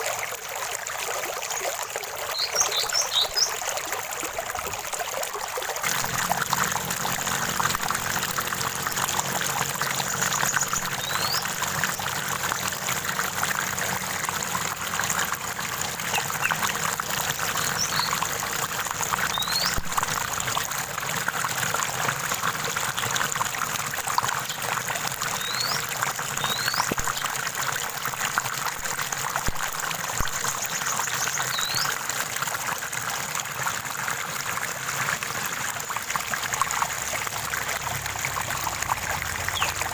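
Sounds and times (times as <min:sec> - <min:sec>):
stream water trickling: 0:00.0 - 0:39.9
bird chirping: 0:02.4 - 0:03.5, 0:10.1 - 0:12.1, 0:17.3 - 0:18.2, 0:19.3 - 0:19.8, 0:25.4 - 0:25.8, 0:26.4 - 0:27.0.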